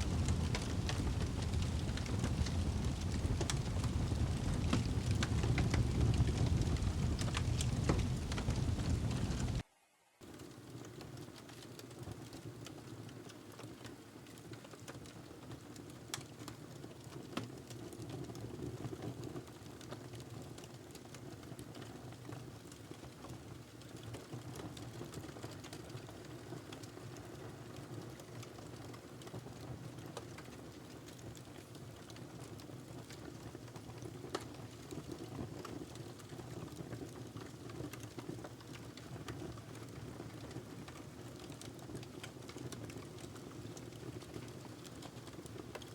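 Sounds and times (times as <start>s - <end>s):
fire crackling and popping: 0.0s - 9.6s, 10.2s - 45.9s
flames rushing: 0.0s - 9.6s.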